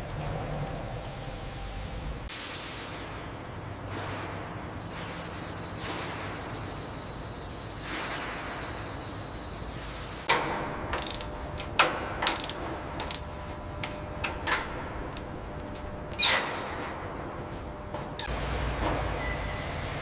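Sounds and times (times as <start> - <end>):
sharp metallic clicks and knocks: 10.3 - 15.3.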